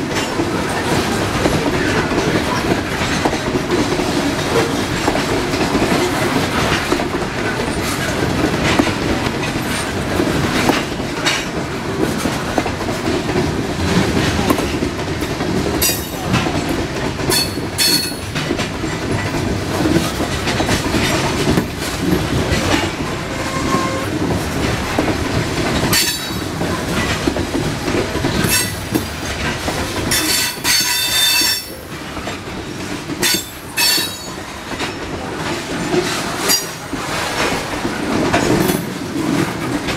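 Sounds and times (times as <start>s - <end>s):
train wheels clattering over rail joints: 0.0s - 39.9s
high-pitched wheel squeals: 23.3s - 24.1s.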